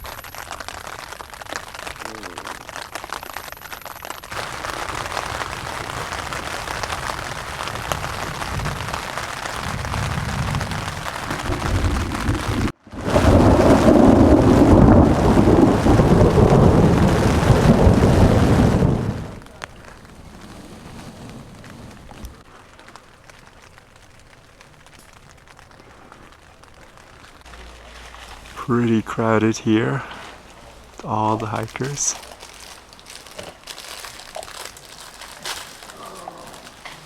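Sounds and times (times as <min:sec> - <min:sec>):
rain falling: 0:00.0 - 0:37.0.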